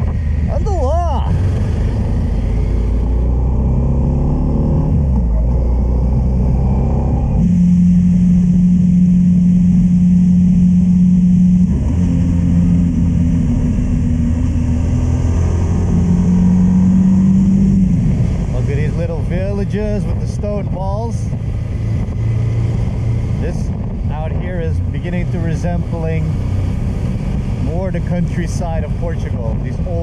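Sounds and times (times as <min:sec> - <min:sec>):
motorcycle engine accelerating: 0:00.0 - 0:30.0
wind rush: 0:13.2 - 0:30.0.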